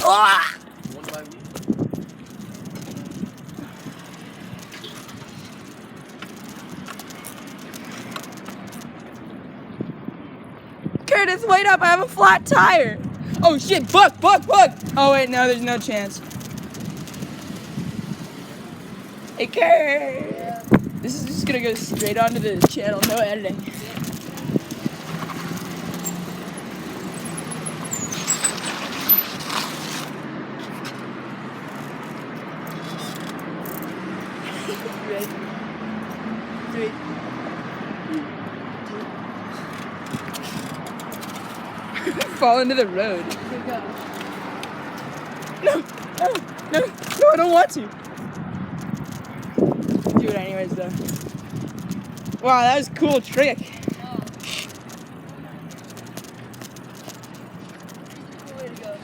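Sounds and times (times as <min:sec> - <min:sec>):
bike clicks and rattles: 0:00.0 - 0:09.4, 0:12.6 - 0:36.8, 0:38.1 - 0:59.0
bicycle tyres rolling on pavement: 0:00.0 - 0:59.0
vehicle engine humming: 0:00.0 - 0:59.0
faint clatters: 0:00.6 - 0:09.3, 0:38.8 - 0:59.0.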